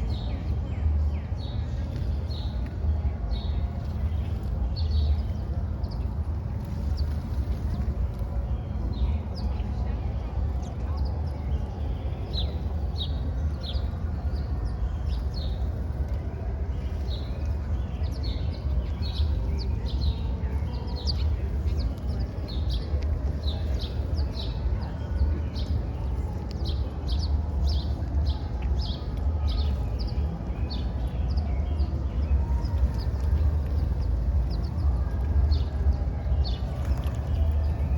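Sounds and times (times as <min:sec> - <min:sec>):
small birds chirping: 0:00.0 - 0:37.9
steady low rumble: 0:00.0 - 0:37.9.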